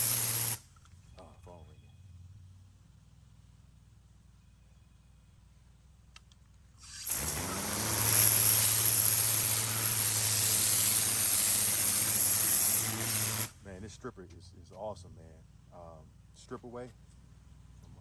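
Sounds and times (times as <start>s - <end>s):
pressure washer motor hum: 0.0s - 0.6s, 6.8s - 13.6s
water jet hissing: 0.0s - 0.6s, 6.8s - 13.6s.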